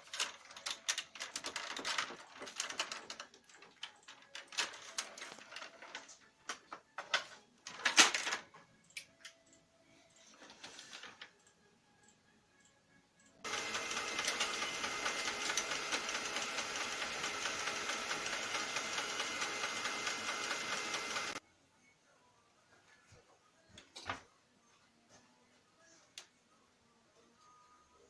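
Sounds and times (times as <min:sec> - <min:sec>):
printer mechanism grinding rattle: 0:13.5 - 0:21.4.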